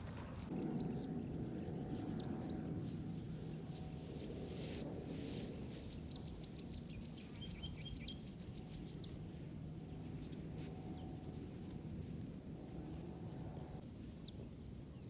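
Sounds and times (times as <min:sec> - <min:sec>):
low wind rumble: 0:00.0 - 0:15.0
bird singing a fast trill: 0:00.5 - 0:04.0, 0:05.6 - 0:09.2.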